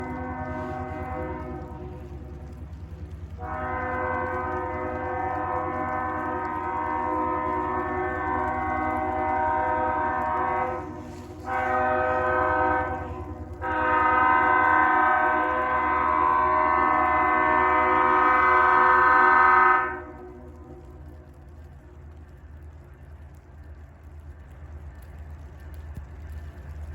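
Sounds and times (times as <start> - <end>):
locomotive air horn blasts: 0.0 - 2.6, 3.3 - 20.6
passing train rumble: 0.0 - 26.9.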